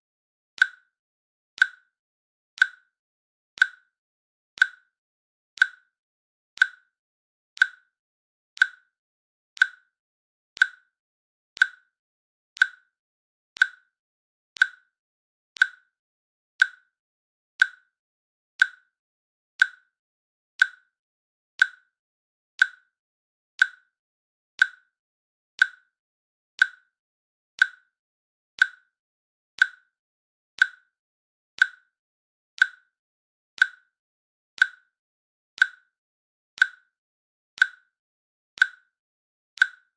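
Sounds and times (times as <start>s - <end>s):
timer clicking: 0.6s - 0.9s, 1.6s - 1.9s, 2.6s - 2.9s, 3.6s - 4.0s, 4.6s - 4.9s, 5.6s - 5.9s, 6.6s - 7.0s, 7.6s - 8.0s, 8.6s - 9.0s, 9.6s - 10.0s, 10.6s - 11.0s, 11.6s - 12.0s, 12.6s - 13.0s, 13.6s - 14.0s, 14.6s - 15.0s, 15.6s - 16.0s, 16.6s - 17.0s, 17.6s - 17.9s, 18.6s - 18.9s, 19.6s - 20.0s, 20.6s - 21.0s, 21.6s - 21.9s, 22.6s - 22.9s, 23.6s - 24.0s, 24.6s - 25.0s, 25.6s - 26.0s, 26.6s - 27.0s, 27.6s - 28.0s, 28.6s - 29.0s, 29.6s - 30.0s, 30.6s - 31.0s, 31.6s - 32.0s, 32.6s - 33.0s, 33.6s - 34.0s, 34.6s - 35.0s, 35.6s - 36.0s, 36.6s - 37.0s, 37.6s - 38.0s, 38.6s - 39.0s, 39.6s - 39.9s.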